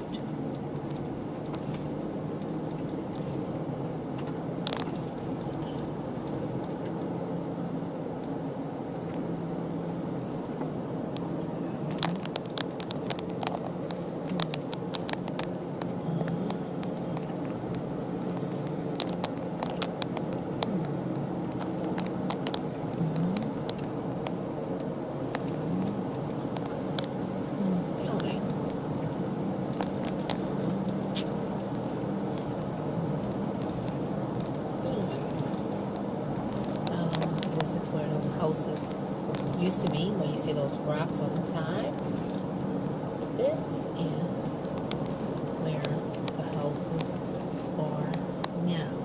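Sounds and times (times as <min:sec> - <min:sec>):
car engine and road hum: 0:00.0 - 0:49.0
sharp clicks and ticks: 0:11.9 - 0:48.8.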